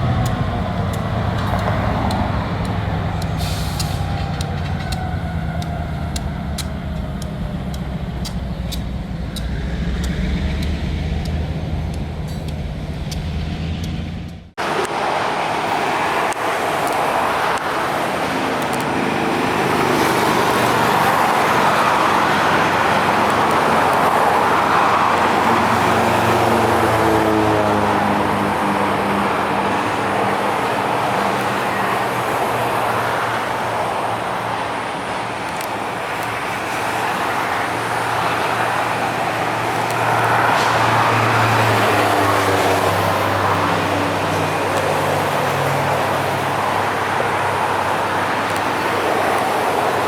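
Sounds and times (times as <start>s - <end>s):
vehicle traffic noise: 0.0s - 50.0s.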